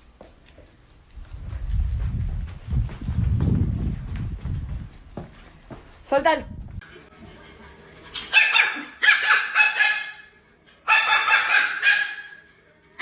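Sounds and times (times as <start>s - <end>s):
dog barking: 8.3s - 12.5s.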